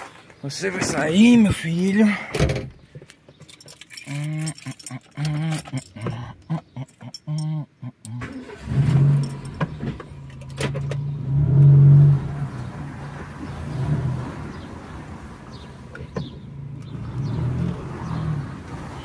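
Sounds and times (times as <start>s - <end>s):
car engine running and revving: 8.4s - 19.0s.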